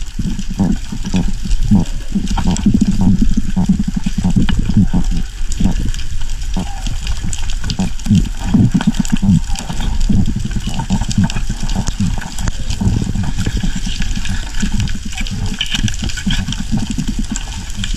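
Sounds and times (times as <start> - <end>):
low churning rumble: 0.0 - 17.9
sea water splashing: 0.0 - 17.9.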